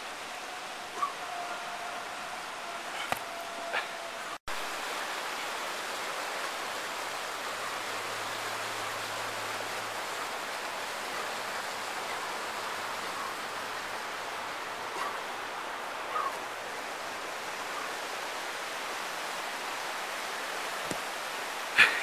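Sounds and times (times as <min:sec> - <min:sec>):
steady rushing outdoor hiss: 0:00.0 - 0:22.0.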